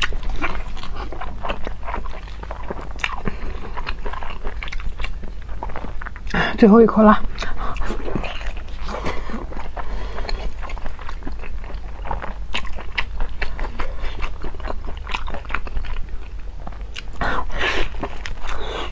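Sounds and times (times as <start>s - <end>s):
wet chewing clicks: 0.0s - 6.4s, 7.3s - 17.3s.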